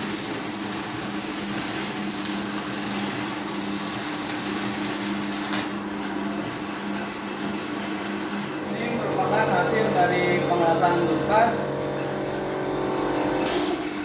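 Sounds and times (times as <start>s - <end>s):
welding arc crackling and hissing: 0.0s - 6.0s, 8.5s - 14.0s
steady low hum: 8.2s - 13.5s.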